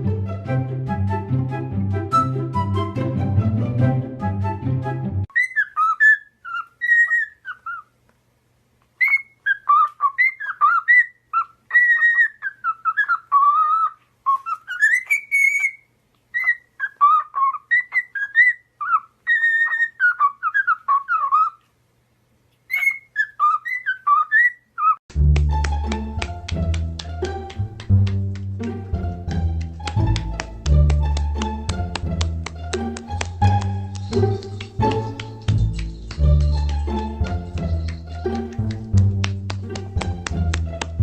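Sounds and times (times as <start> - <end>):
background music: 0.0 - 5.3, 25.1 - 41.0
parrot whistling a tune: 5.3 - 7.8, 9.0 - 15.8, 16.4 - 21.5, 22.7 - 25.0.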